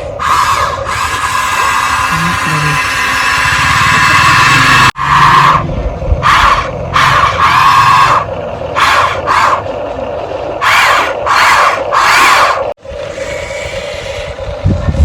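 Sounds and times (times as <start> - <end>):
small electric motor whining: 1.1 - 4.9.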